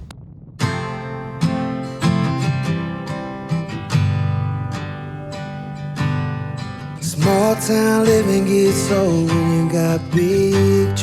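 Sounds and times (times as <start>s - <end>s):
acoustic guitar strumming chords: 0.6s - 11.0s.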